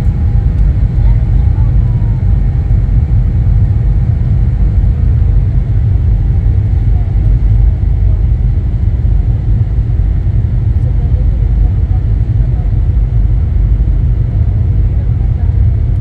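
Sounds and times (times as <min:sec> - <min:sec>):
airliner cabin rumble: 0:00.0 - 0:16.0
faint constant hum: 0:00.0 - 0:16.0.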